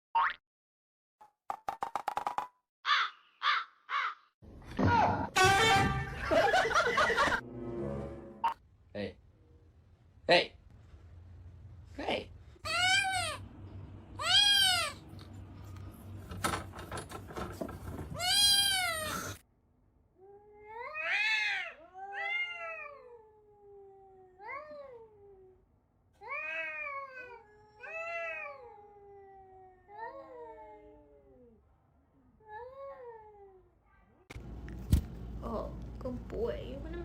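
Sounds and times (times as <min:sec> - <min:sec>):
cat meowing: 0:18.2 - 0:19.4, 0:20.6 - 0:25.0.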